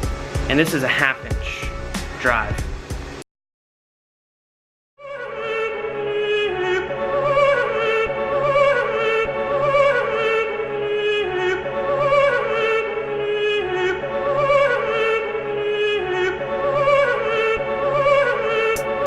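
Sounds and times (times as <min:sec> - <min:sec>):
wavering sung vocal line: 0:05.0 - 0:19.0.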